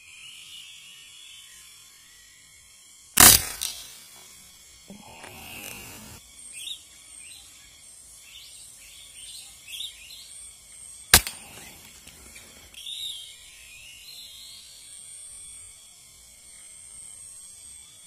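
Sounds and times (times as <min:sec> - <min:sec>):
small birds chirping: 0:00.0 - 0:18.0
air rifle shot: 0:03.2 - 0:04.0, 0:04.9 - 0:06.2, 0:11.2 - 0:12.8.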